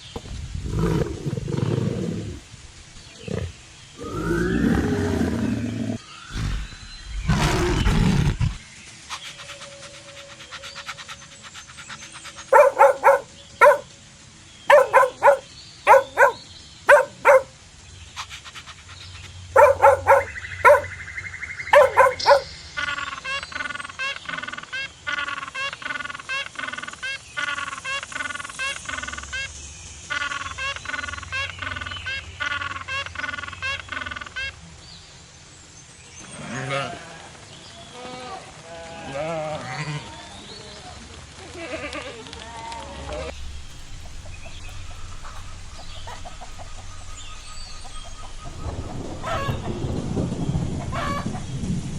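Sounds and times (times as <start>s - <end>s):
rapid high-pitched dog calls: 12.4s - 13.9s, 14.7s - 17.5s, 19.6s - 20.9s, 21.7s - 22.5s, 44.1s - 49.8s
dog barking: 12.5s - 13.9s, 14.7s - 17.5s, 19.6s - 20.9s, 21.7s - 22.5s.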